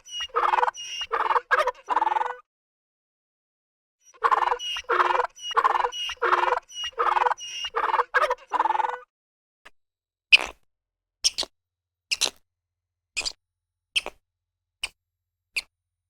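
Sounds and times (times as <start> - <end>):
animal calling: 0.0 - 2.4, 4.1 - 9.1.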